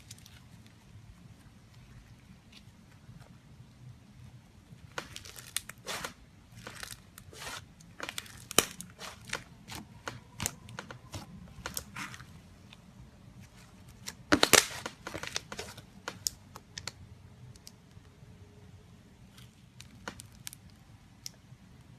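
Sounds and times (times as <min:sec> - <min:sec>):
slime crackling and popping: 0:04.8 - 0:12.2, 0:13.9 - 0:17.0, 0:19.3 - 0:20.8.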